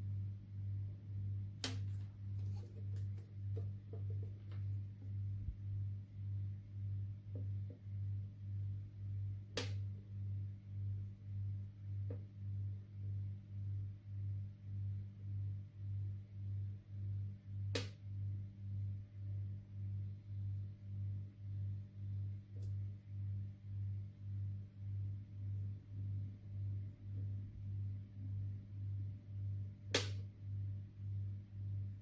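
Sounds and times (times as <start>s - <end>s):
low pulsing hum: 0.0s - 32.0s.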